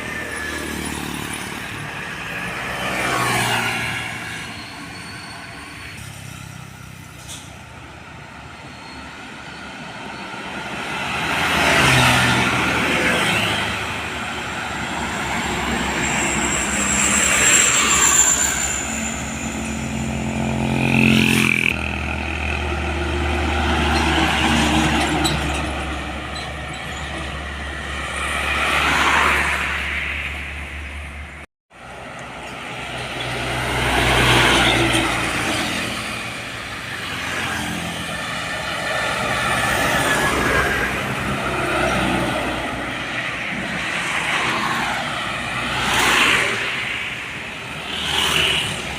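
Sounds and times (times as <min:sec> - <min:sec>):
trucks and cars passing: 0:00.0 - 0:48.9.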